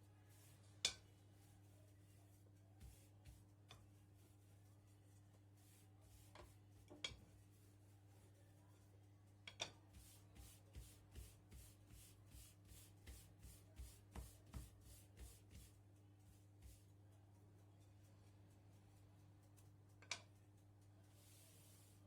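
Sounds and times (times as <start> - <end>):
soft rubbing strokes: 0.0 - 22.0.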